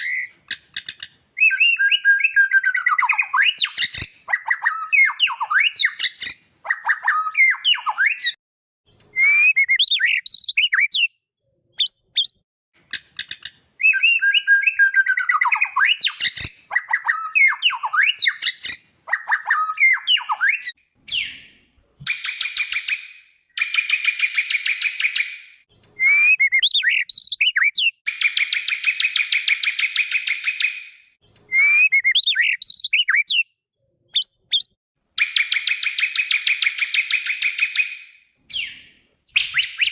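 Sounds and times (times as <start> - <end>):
bird whistling song: 0.0 - 8.4, 9.1 - 11.2, 11.8 - 39.9.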